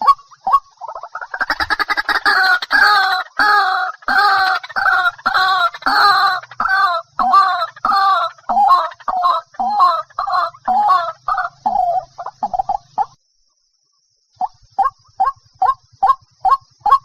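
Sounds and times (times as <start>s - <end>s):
bird harsh repeated call: 0.0s - 13.2s.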